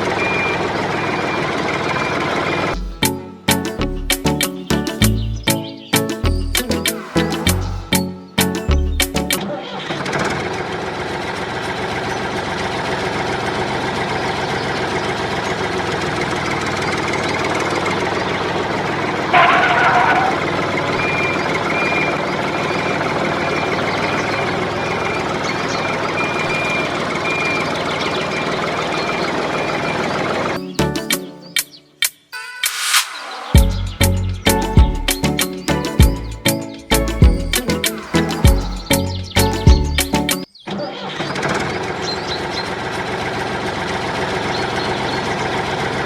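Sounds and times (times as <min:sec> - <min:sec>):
faint high beep: 0:00.2 - 0:00.7, 0:32.4 - 0:34.0
loud pitched honk: 0:19.3 - 0:20.8.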